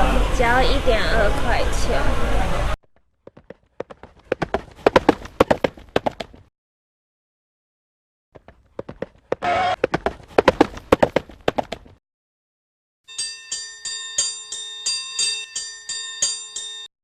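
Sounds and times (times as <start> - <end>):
sharp clip-clop clicks: 3.2 - 6.4, 8.4 - 12.0
bell-like chime: 13.1 - 16.9.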